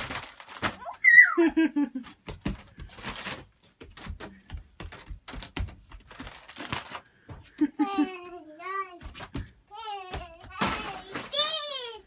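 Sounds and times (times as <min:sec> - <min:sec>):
rustling: 0:00.0 - 0:12.0
child squealing: 0:00.8 - 0:01.5.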